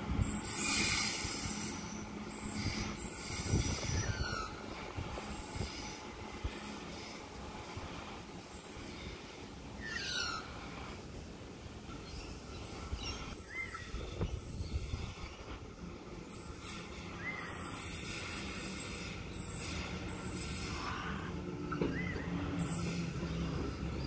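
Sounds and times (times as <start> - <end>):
train rumble: 0.0 - 24.0
wheels squealing on curved track: 0.2 - 7.2, 8.5 - 10.9, 16.2 - 24.0.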